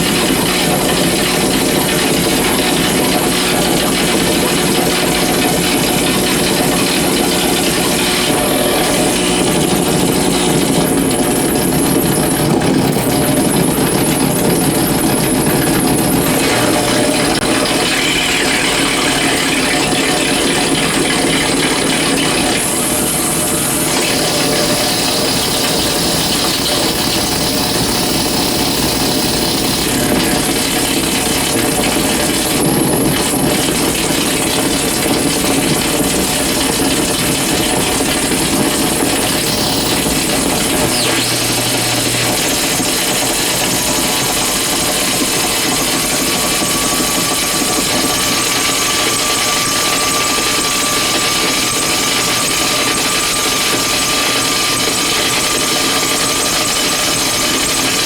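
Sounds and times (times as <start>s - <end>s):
dense electrical buzzing: 23.0s - 32.4s, 34.6s - 49.3s
steady high whistle: 23.9s - 30.2s, 38.7s - 44.4s.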